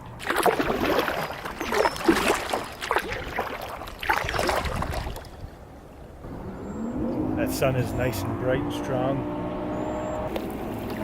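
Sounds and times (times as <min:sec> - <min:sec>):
paddle strokes splashing water: 0:00.2 - 0:05.6, 0:10.3 - 0:11.0.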